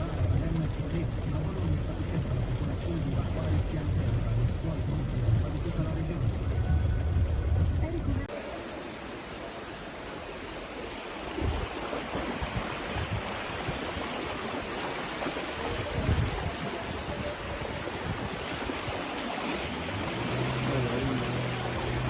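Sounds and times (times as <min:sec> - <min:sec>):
low steady hum: 0:00.0 - 0:09.0
rushing water from rain and river: 0:00.0 - 0:22.0.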